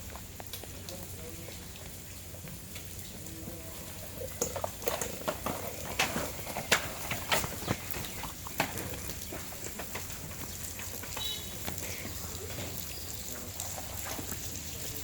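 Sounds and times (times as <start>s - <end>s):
irregular knocks and clatters: 4.2s - 12.8s.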